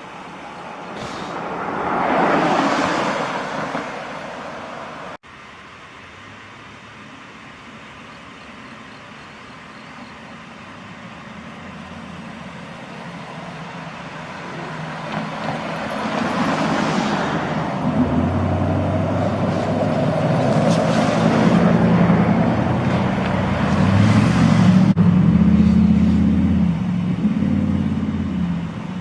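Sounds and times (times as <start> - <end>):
heavy truck diesel engine approaching: 5.9 - 29.0.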